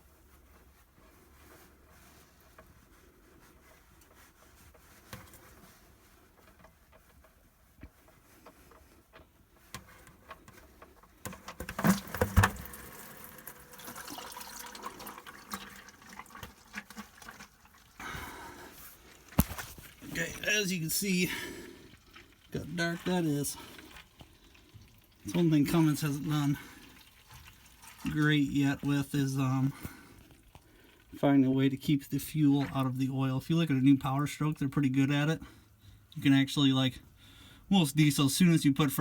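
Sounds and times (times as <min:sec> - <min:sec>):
oil pouring into drain pan: 0:11.3 - 0:31.2.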